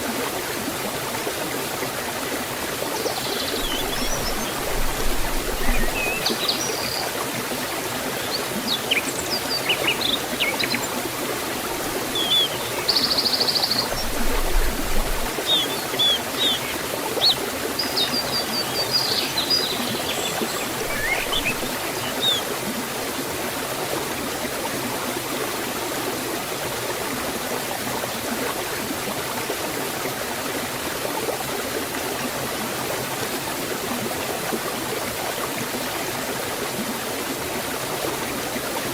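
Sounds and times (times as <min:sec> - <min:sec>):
waterfall rushing: 0:02.9 - 0:22.6
birds chirping: 0:03.0 - 0:07.2, 0:08.0 - 0:22.5.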